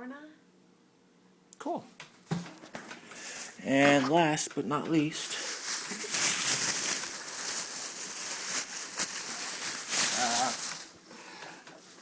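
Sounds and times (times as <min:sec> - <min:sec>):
packaging rustling and handling: 0:02.3 - 0:11.1.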